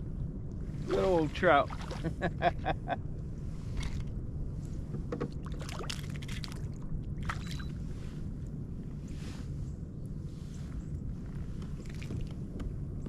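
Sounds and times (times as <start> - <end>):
steady low hum: 0.0 - 13.0
small water splashes: 1.0 - 2.2, 5.4 - 7.7.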